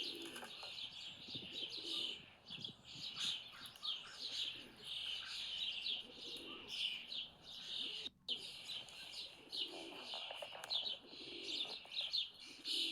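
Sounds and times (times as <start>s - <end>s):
pigeon cooing: 0.0s - 0.6s, 1.6s - 2.2s, 6.0s - 6.8s, 9.4s - 11.9s, 12.5s - 12.9s
songbirds chirping: 0.0s - 12.9s.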